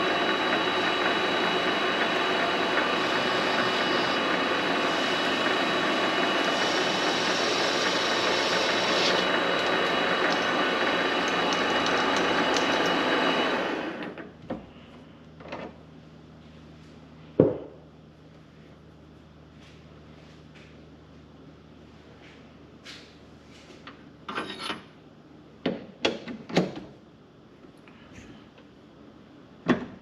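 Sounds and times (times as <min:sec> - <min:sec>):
lathe whining: 0:00.0 - 0:14.2.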